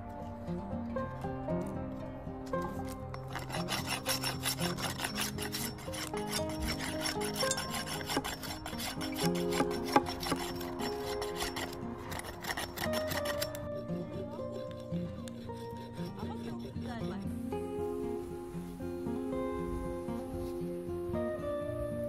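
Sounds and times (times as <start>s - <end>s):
background music: 0.0s - 22.0s
rapid scraping and rubbing: 2.7s - 17.2s.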